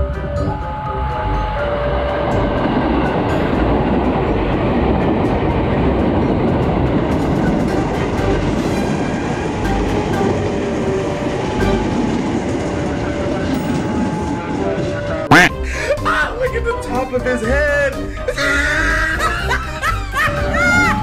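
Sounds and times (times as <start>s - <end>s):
electric train passing: 0.0s - 21.0s
wheels rumbling on rails: 0.0s - 21.0s
clickety-clack of wheels: 2.9s - 15.3s.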